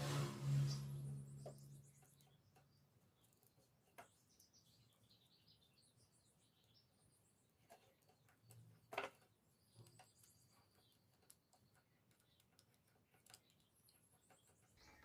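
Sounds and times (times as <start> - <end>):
faint clicks and handling noises: 7.6 - 15.0.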